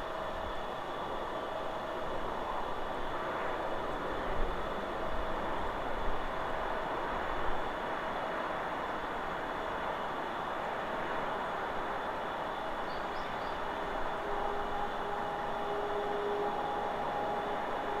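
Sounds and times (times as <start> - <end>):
wind blowing through trees: 0.0 - 18.0.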